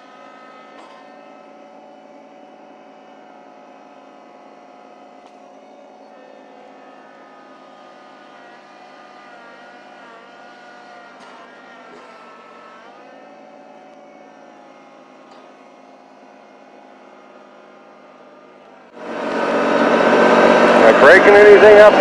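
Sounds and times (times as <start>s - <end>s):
tractor engine running: 11.6s - 22.0s.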